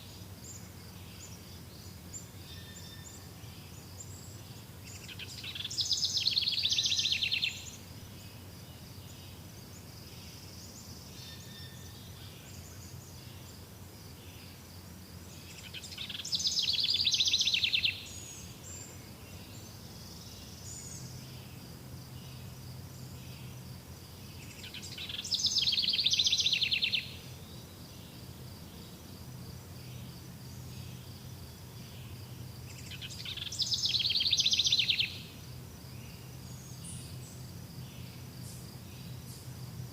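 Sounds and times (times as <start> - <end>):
songbird trilling: 4.9 - 7.8, 15.6 - 18.8, 24.4 - 27.4, 32.7 - 35.3.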